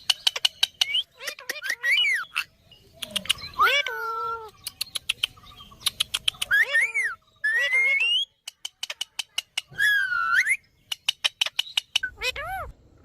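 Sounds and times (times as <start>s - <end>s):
sharp clicks: 3.0s - 3.6s, 4.5s - 6.6s
parakeet whistle-like calls: 6.5s - 8.4s.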